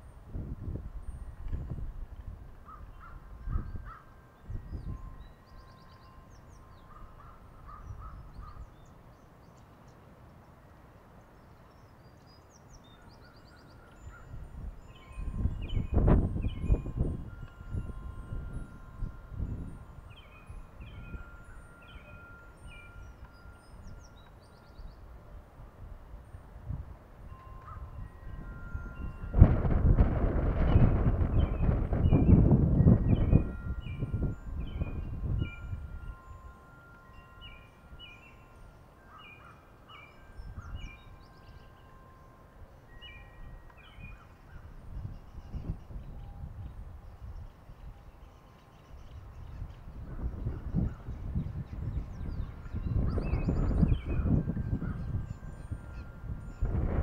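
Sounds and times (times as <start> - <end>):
bird trill: 2.6 - 10.1, 11.2 - 25.1, 27.3 - 29.4, 30.6 - 57.0
bird chirping: 2.7 - 25.1, 30.7 - 56.8
thin steady whistles: 2.9 - 25.3, 27.3 - 57.0.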